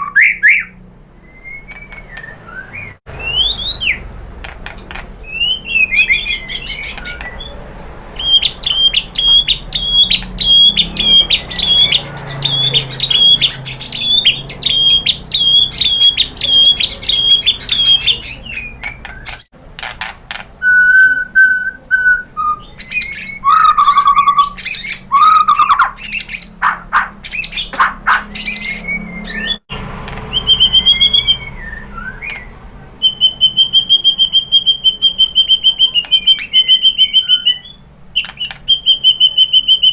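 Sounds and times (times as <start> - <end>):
bird whistles: 0.0 - 4.0, 5.2 - 7.6, 8.2 - 19.5, 20.6 - 29.6, 30.3 - 39.9
bird trill: 0.0 - 7.6, 8.2 - 19.5, 20.6 - 29.6, 30.3 - 39.9
songbird singing: 0.0 - 39.9
bird clicks: 32.2 - 32.5, 38.2 - 38.8.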